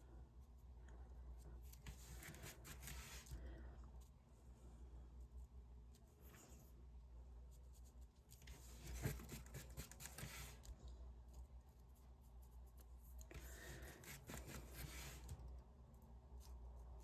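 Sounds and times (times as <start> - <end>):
sponge scraping on paper: 13.5 - 15.3.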